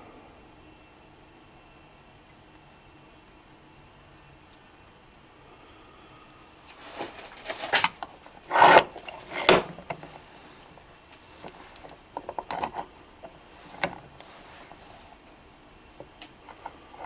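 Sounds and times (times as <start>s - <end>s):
metal tools scraping and rattling: 6.8s - 10.3s, 11.4s - 15.1s, 16.5s - 17.0s.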